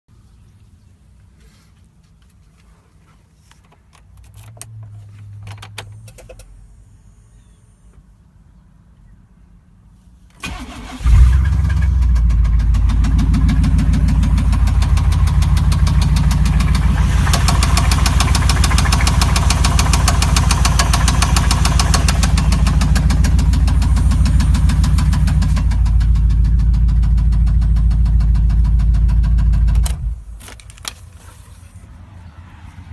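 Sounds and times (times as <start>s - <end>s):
starter cranking engine: 10.4s - 30.2s
engine running with rod knock: 11.8s - 30.1s.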